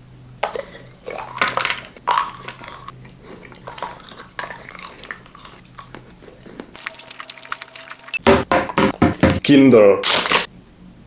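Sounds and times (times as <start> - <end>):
chewing chocolate: 0.4 - 8.2.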